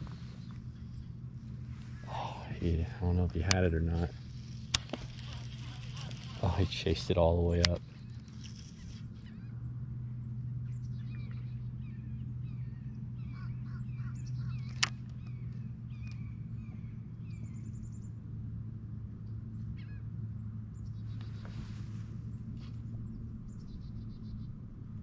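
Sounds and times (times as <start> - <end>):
birds singing and calling: 0.0 - 18.2, 20.7 - 24.6
steady low hum: 0.0 - 25.0
sharp click: 14.6 - 15.1.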